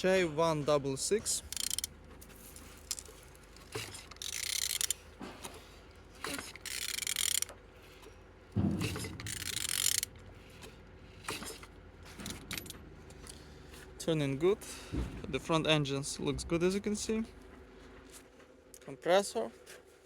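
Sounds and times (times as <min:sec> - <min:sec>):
engine mechanical rattling: 0:00.0 - 0:20.0
ratchet wrench clicking: 0:01.3 - 0:01.9, 0:02.6 - 0:05.0, 0:06.2 - 0:07.6, 0:08.8 - 0:10.1.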